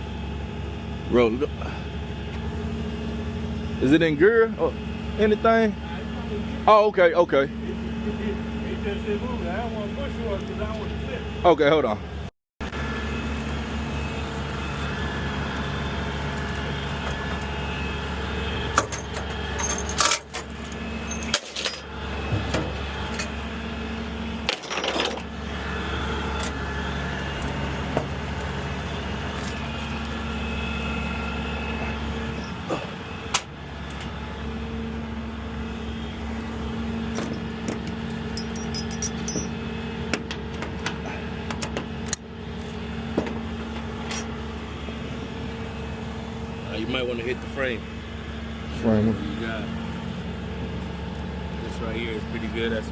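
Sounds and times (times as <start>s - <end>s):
truck engine running: 0.0s - 52.9s
metallic clinks and knocks: 18.9s - 21.8s, 38.3s - 39.6s.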